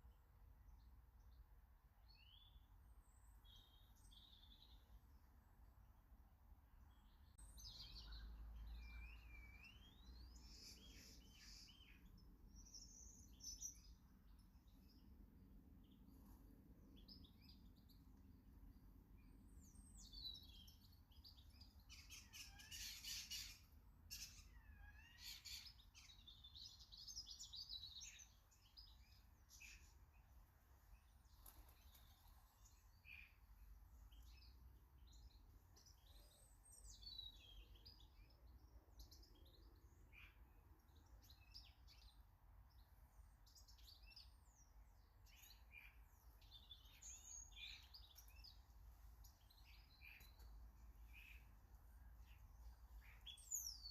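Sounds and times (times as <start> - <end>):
faint birdsong: 0.0 - 53.9.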